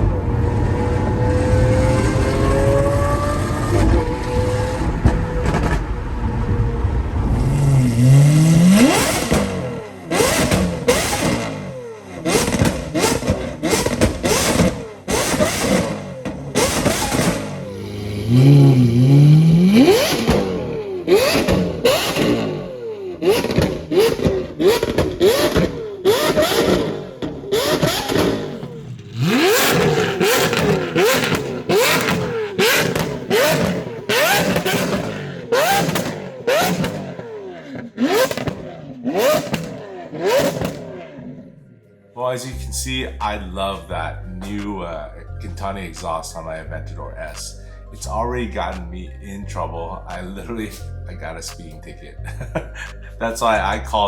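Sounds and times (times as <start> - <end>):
car engine revving: 0.0 - 54.0
exhaust backfire pops: 3.7 - 11.6, 12.2 - 17.6, 19.7 - 22.6, 23.2 - 41.2.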